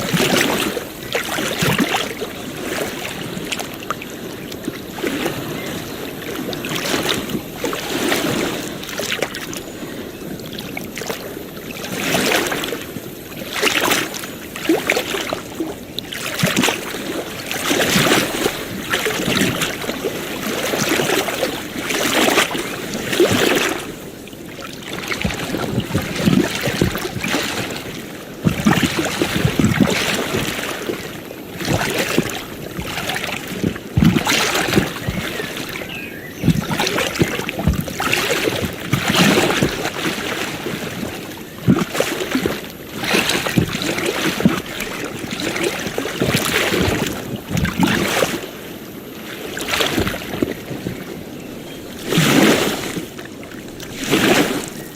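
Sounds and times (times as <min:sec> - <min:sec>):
small waves lapping: 0:00.0 - 0:54.9.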